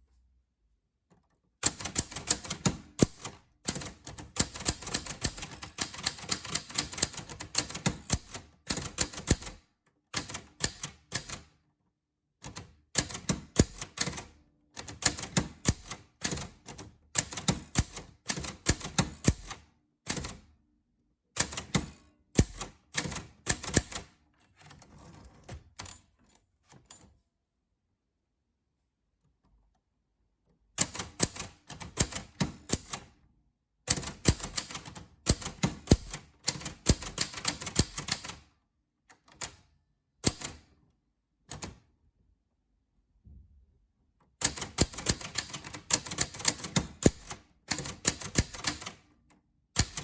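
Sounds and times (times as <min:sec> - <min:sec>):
typewriter key strikes: 0:21.4 - 0:24.1, 0:33.9 - 0:38.4, 0:44.4 - 0:49.0, 0:49.8 - 0:50.0.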